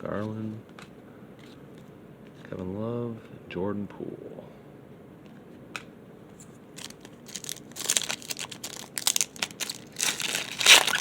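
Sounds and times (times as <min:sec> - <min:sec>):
plastic wrapper crinkling and tearing: 0:06.8 - 0:11.0.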